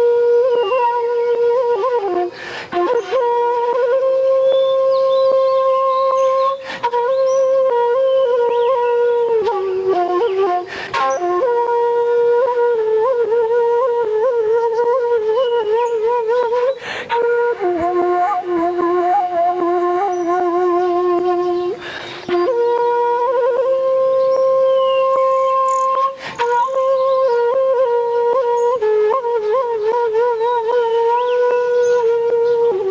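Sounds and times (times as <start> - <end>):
bamboo flute playing: 0.0 - 32.9.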